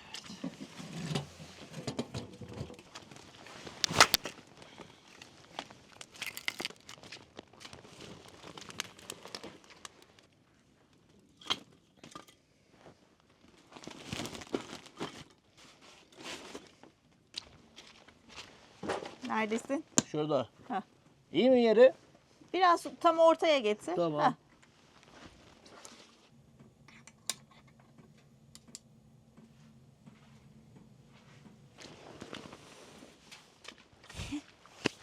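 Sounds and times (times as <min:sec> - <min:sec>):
crinkling and rustling: 0:02.9 - 0:04.4, 0:05.6 - 0:10.3, 0:13.3 - 0:16.8.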